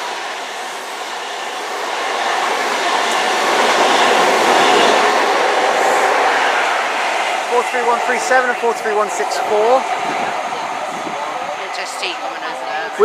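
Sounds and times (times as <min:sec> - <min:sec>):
train passing at speed: 0:00.0 - 0:13.0.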